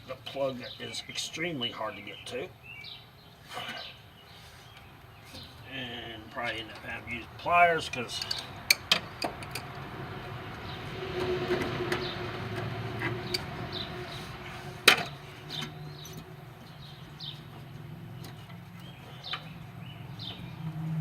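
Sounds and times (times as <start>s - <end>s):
hand tools clicking: 7.9s - 9.7s.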